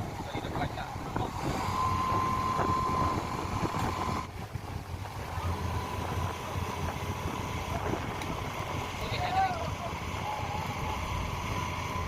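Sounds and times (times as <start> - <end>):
wind buffeting microphone: 0.0 - 10.0
low steady rumble: 0.0 - 12.0
thin high tone: 1.6 - 4.3.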